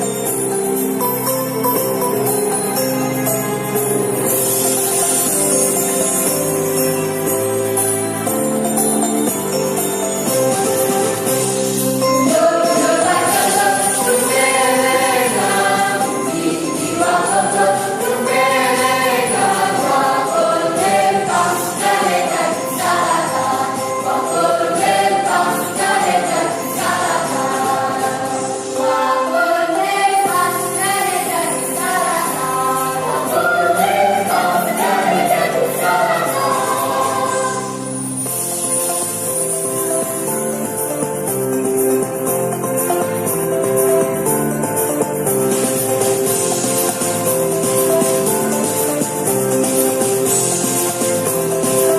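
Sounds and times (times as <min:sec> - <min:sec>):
instrumental accompaniment: 0:00.0 - 0:51.9
jingling percussion: 0:00.0 - 0:51.9
choir singing: 0:12.0 - 0:38.0.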